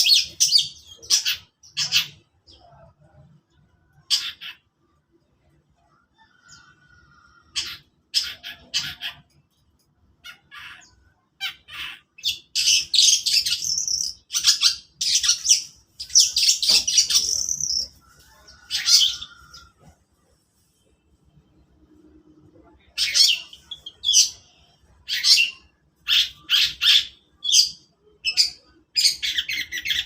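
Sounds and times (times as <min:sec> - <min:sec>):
bird harsh scratchy chattering: 0:11.5 - 0:20.8.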